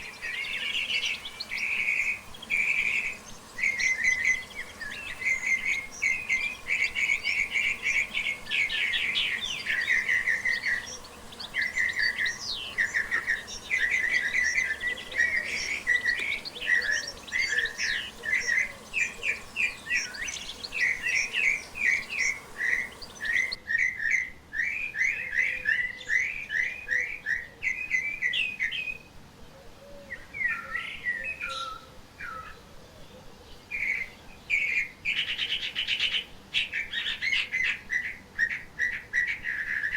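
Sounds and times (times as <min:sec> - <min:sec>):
forest birds chirping: 0:00.0 - 0:23.8, 0:25.0 - 0:39.9.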